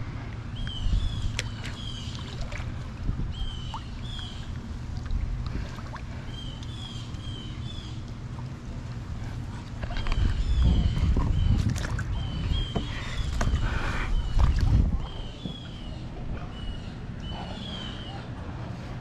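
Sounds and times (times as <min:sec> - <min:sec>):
wind rumble on microphone: 0:00.0 - 0:06.2, 0:09.2 - 0:17.2.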